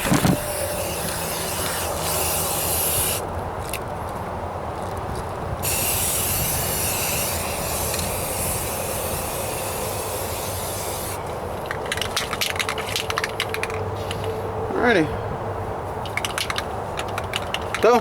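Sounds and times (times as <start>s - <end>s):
aerosol can spraying: 0.0s - 3.2s, 5.6s - 11.2s
wind buffeting microphone: 0.0s - 18.0s
quick clicks: 11.6s - 14.4s, 16.0s - 18.0s.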